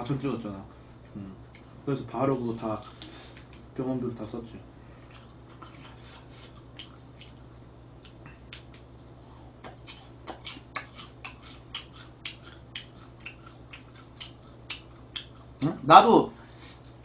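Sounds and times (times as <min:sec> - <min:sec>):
low electrical hum: 0:00.0 - 0:17.0
chewing and wet mouth clicks: 0:06.4 - 0:07.4, 0:08.0 - 0:15.6.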